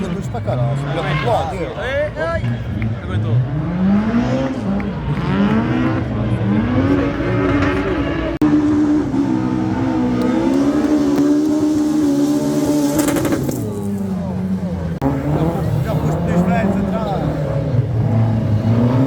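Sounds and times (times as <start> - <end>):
rally car engine revving: 2.6 - 19.0.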